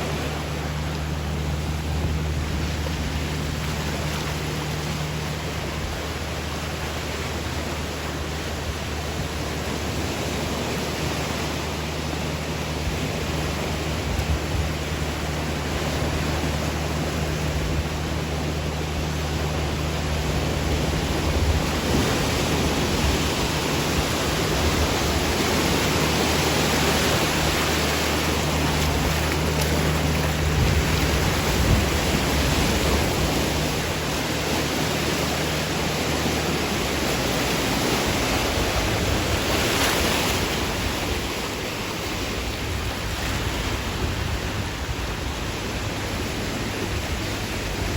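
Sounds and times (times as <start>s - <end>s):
low steady hum: 0.0s - 47.9s
water rushing along river: 0.0s - 47.9s.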